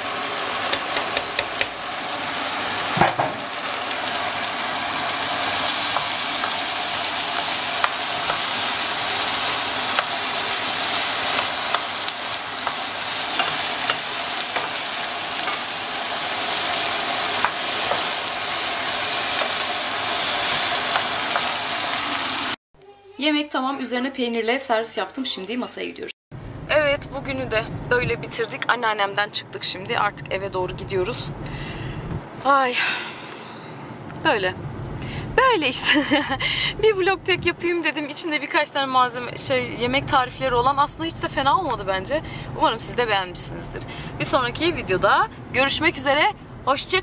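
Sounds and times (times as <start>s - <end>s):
vegetables sizzling in a frying pan: 0.0s - 22.6s.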